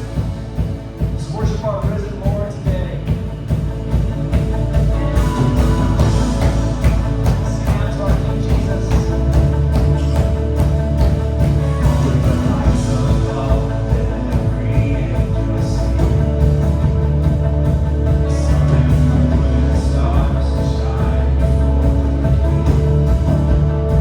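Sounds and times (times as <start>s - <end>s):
rock band playing: 0.0s - 24.0s
steady drum beat: 0.0s - 24.0s.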